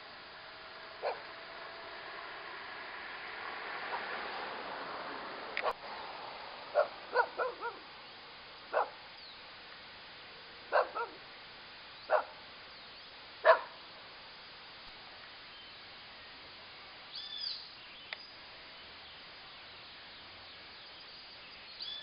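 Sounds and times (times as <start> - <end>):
dog barking: 1.0 - 1.3, 6.7 - 7.8, 8.7 - 9.0, 10.7 - 11.2, 12.1 - 12.4, 13.4 - 13.8.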